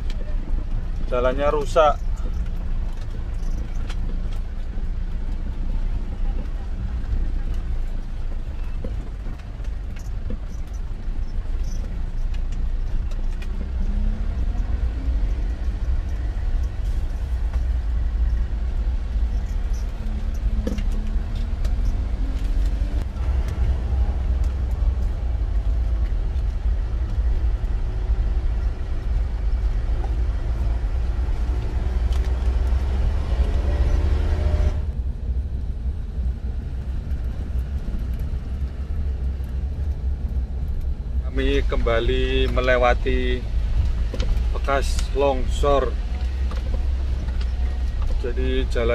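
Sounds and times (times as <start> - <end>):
road noise low rumble: 0.0 - 48.9
diesel engine revving: 9.0 - 35.1.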